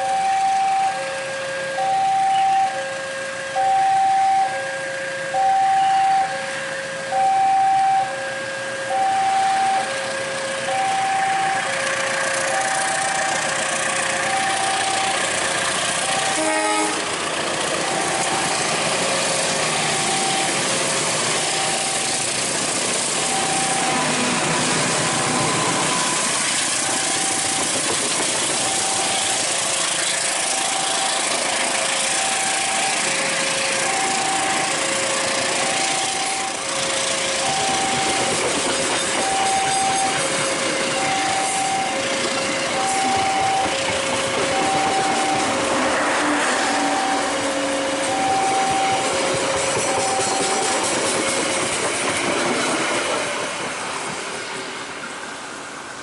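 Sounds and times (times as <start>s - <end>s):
level crossing alarm two tones: 0.0s - 11.9s, 12.5s - 13.6s, 14.2s - 15.4s, 16.0s - 16.8s, 17.9s - 18.7s, 19.9s - 20.7s, 21.4s - 22.3s, 23.2s - 27.9s, 28.6s - 29.5s, 32.0s - 38.5s, 39.1s - 40.3s, 40.9s - 50.8s
passing train rumble and hiss: 0.0s - 56.0s.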